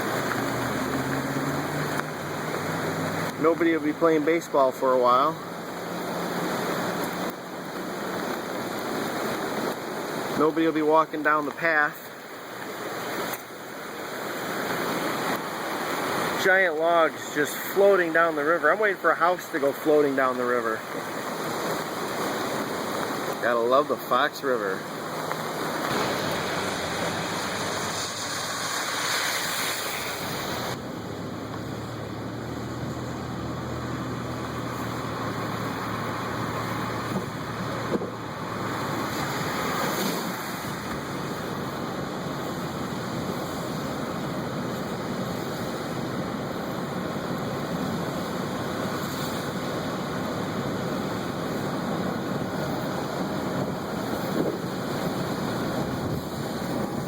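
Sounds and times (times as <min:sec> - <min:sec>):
river rushing: 0:00.0 - 0:57.0.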